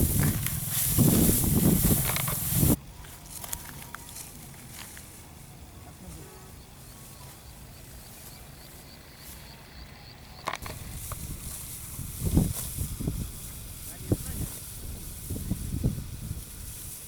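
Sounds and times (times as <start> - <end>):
steady low rumble: 0.0 - 2.8.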